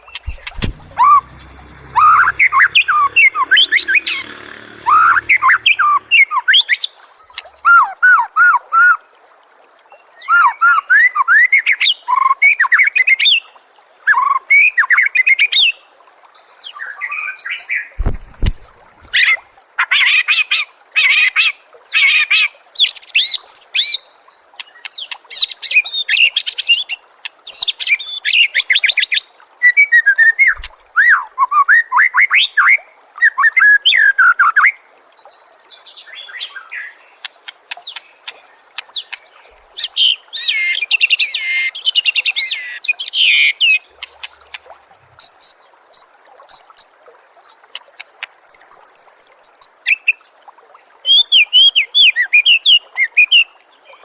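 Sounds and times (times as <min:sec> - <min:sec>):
short low thump: 0:00.1 - 0:06.0, 0:18.0 - 0:18.8.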